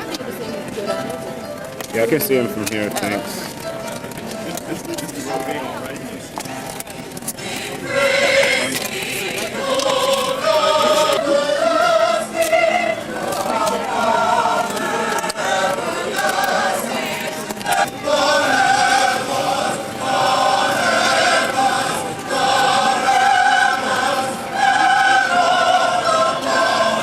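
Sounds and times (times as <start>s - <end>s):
choir singing: 7.3s - 27.0s.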